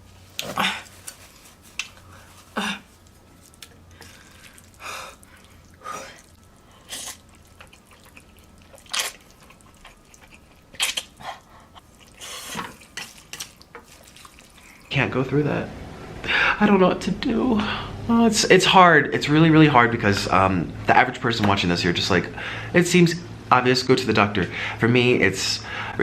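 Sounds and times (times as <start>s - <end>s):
person eating with wet mouth sounds: 0.4s - 14.9s.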